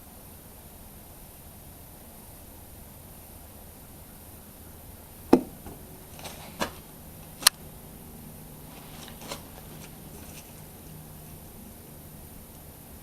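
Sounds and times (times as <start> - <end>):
oil jug knocking: 5.3 - 7.5.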